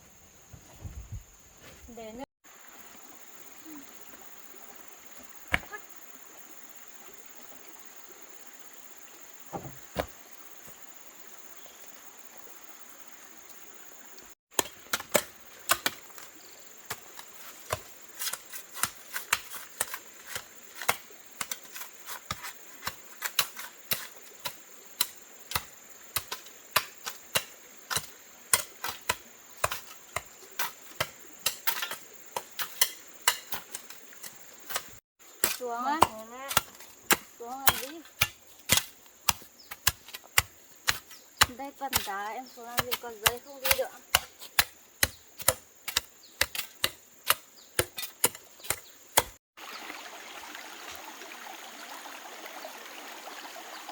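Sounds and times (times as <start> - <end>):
hand tool striking wood: 9.5 - 10.2, 14.5 - 16.3, 16.9 - 49.4.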